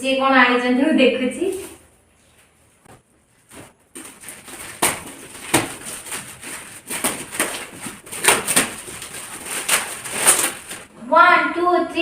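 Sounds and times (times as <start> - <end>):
gift packaging crinkling: 3.9 - 10.9.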